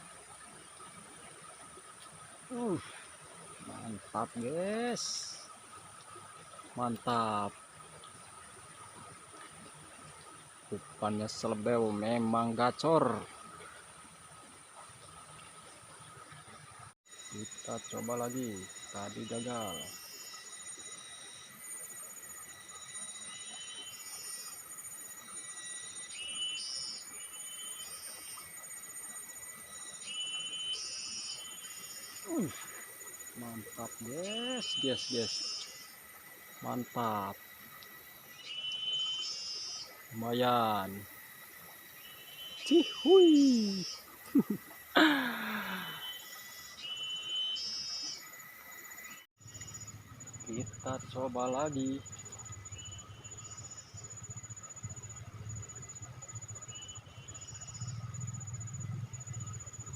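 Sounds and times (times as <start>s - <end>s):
insect chirping calls: 0.0s - 59.9s
insects trilling: 0.0s - 59.9s
faint high-pitched tones: 17.2s - 37.4s.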